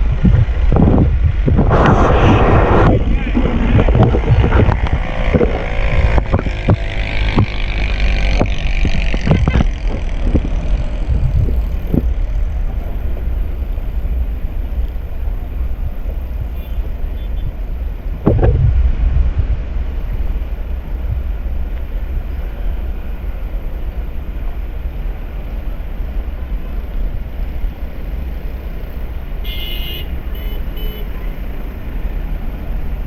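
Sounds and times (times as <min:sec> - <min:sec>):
wind buffeting microphone: 0:00.0 - 0:16.6, 0:17.4 - 0:21.6
motorcycle engine: 0:01.7 - 0:13.0
tyres on wet road: 0:02.8 - 0:33.0.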